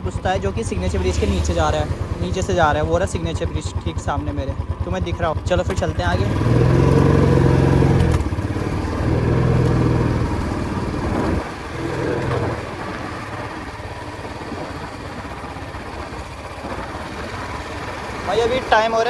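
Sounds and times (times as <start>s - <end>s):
motorcycle engine pulling: 0.0s - 19.0s
road noise: 0.0s - 19.0s
wind noise: 8.0s - 18.4s.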